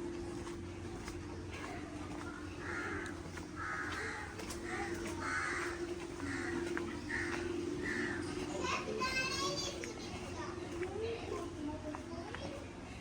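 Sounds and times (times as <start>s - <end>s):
steady low hum: 0.0s - 13.0s
crow cawing: 2.6s - 8.4s.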